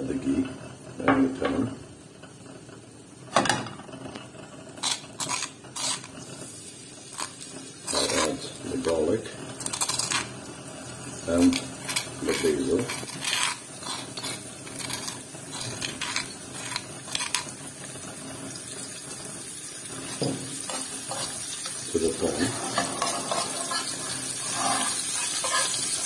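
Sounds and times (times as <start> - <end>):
garlic sizzling in hot fat: 0.0 - 26.0
metal spoon clinking and scraping: 4.8 - 6.1, 9.6 - 10.3, 11.4 - 17.6, 20.2 - 26.0.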